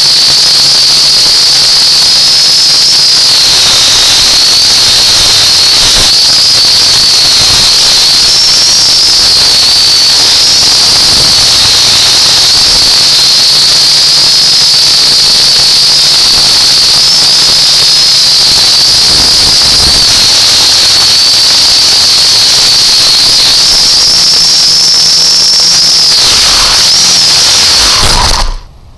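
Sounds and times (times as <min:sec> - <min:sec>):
drone motors whining: 0:00.0 - 0:28.9.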